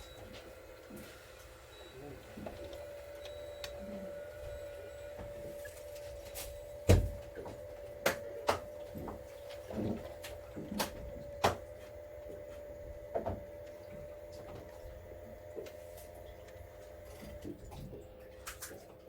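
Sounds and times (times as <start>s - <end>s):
steady hum: 0.0s - 19.0s
sharp irregular clicks and knocks: 4.5s - 14.8s.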